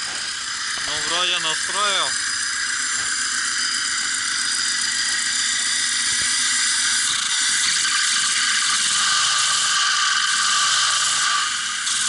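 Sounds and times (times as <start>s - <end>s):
engine clattering: 0.0s - 8.9s.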